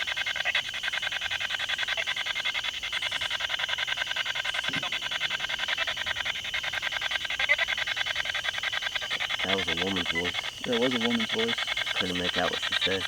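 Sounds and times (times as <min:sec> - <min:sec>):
pulsing radio static: 0:04.2 - 0:13.0.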